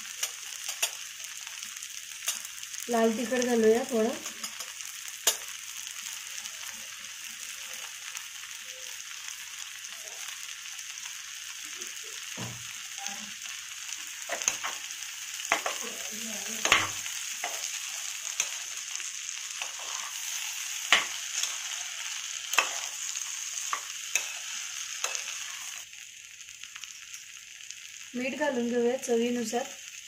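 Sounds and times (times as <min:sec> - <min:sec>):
rice sizzling in oil: 0:00.0 - 0:30.0
spoon stirring and scraping pot: 0:15.5 - 0:25.8.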